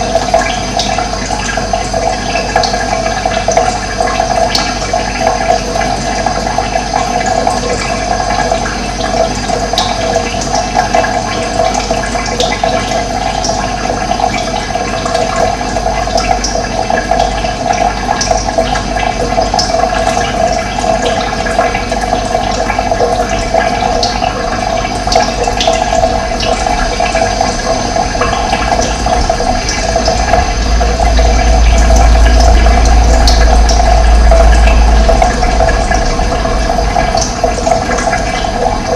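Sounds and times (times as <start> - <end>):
running water flowing: 0.0 - 38.9
deep low rumble: 23.3 - 38.9.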